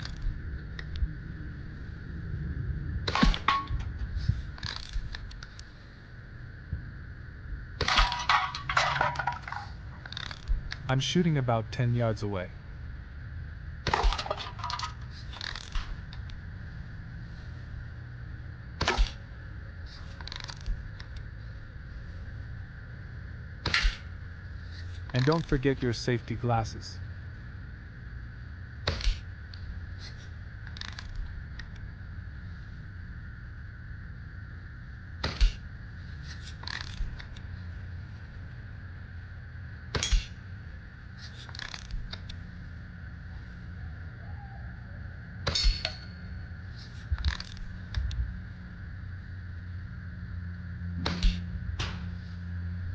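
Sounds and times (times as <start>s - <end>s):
air rifle shot: 3.1s - 3.5s.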